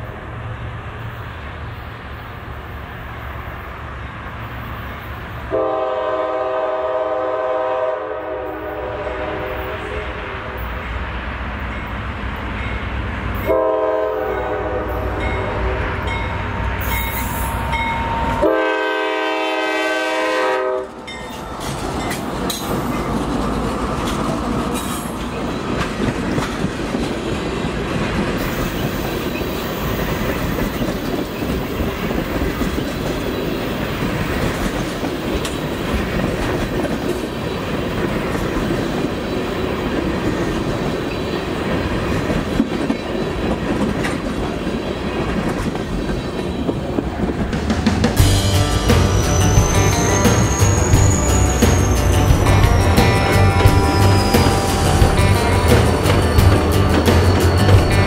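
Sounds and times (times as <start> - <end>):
train wheels rumbling: 0.0 - 58.0
train horn blast: 5.5 - 10.8, 13.4 - 21.2, 49.1 - 57.0
wheels clacking over rails: 20.9 - 58.0.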